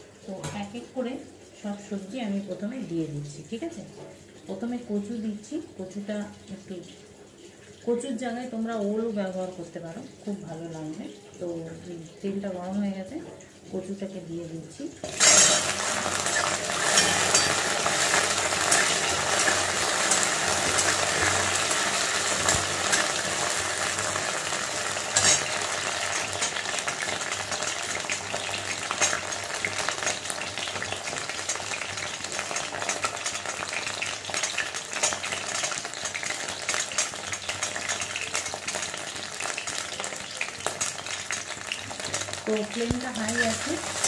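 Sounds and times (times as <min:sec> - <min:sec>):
food sizzling in hot oil: 0:00.0 - 0:44.0
spatula scraping a metal pan: 0:15.2 - 0:21.4, 0:25.1 - 0:25.6.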